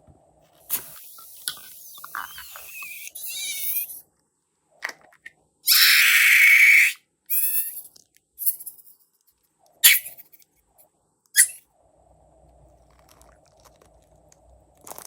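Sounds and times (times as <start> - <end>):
air hissing out of balloon: 0.6 - 4.0
rubber balloons squeaking: 1.8 - 4.0.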